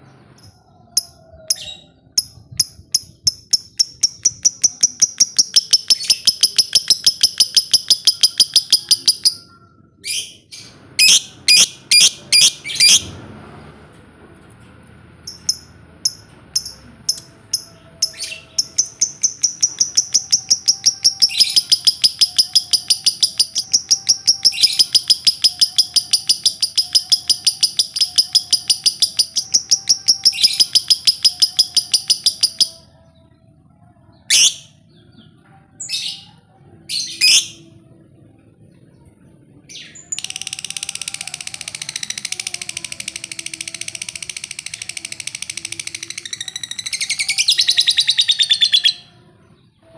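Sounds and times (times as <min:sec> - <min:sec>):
bird chattering trill: 0:01.5 - 0:09.4, 0:15.3 - 0:32.8, 0:40.1 - 0:49.0.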